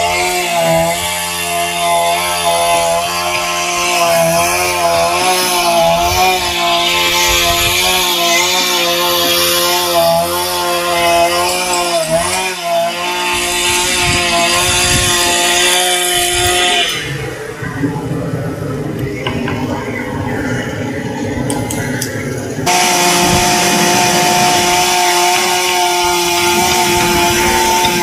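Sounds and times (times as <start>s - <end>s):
small motor running: 22.7s - 28.0s.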